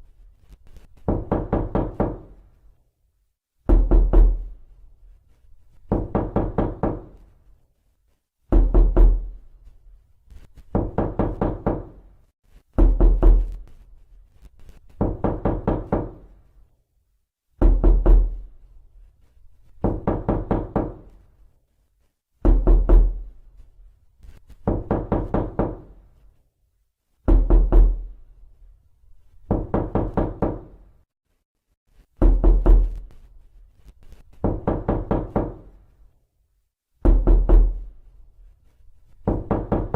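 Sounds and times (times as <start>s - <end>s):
knocking on a door: 1.0s - 2.4s, 3.6s - 4.6s, 5.9s - 7.2s, 8.5s - 9.4s, 10.7s - 12.1s, 12.8s - 13.6s, 15.0s - 16.4s, 17.6s - 18.4s, 19.8s - 21.2s, 22.4s - 23.3s, 24.6s - 26.0s, 27.2s - 28.1s, 29.5s - 30.8s, 32.2s - 33.0s, 34.3s - 35.8s, 37.0s - 37.9s, 39.2s - 39.9s.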